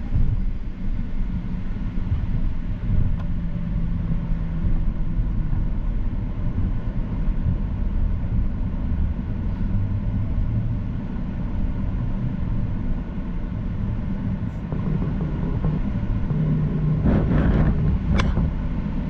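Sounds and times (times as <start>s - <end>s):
jet engines rumbling in cabin: 0.0s - 19.0s.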